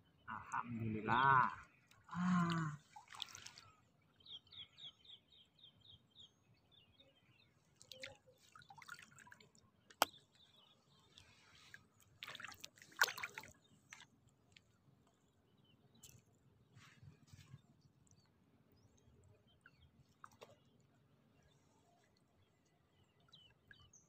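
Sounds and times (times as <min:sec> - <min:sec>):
water drips and splashes: 0:01.8 - 0:03.8, 0:07.7 - 0:15.2, 0:19.6 - 0:20.8
rustle and splash: 0:02.2 - 0:03.8, 0:11.0 - 0:14.7.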